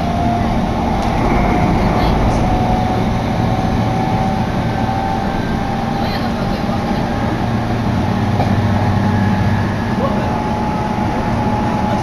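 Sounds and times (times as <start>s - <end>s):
train wheels rumbling on rails: 0.0s - 12.0s
electric hum: 0.4s - 5.5s.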